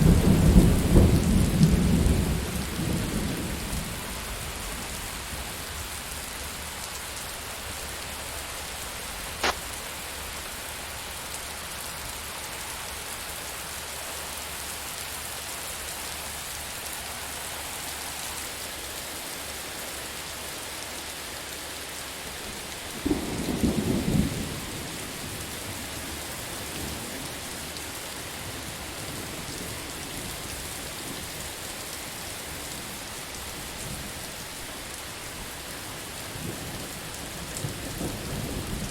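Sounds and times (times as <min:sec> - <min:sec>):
low rumble of thunder: 0:00.0 - 0:06.0, 0:22.5 - 0:27.8, 0:36.3 - 0:38.9
rain falling: 0:00.0 - 0:38.9
sharp crack: 0:09.4 - 0:09.7.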